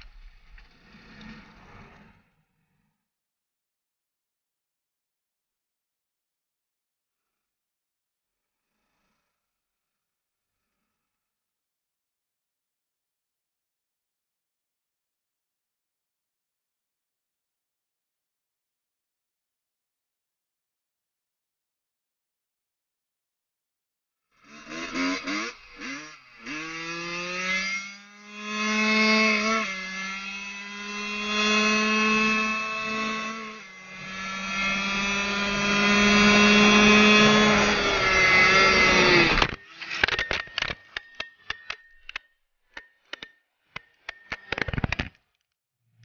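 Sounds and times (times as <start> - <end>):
dirt bike engine accelerating: 24.4 - 42.2
sharp clicks and knocks: 39.3 - 45.5.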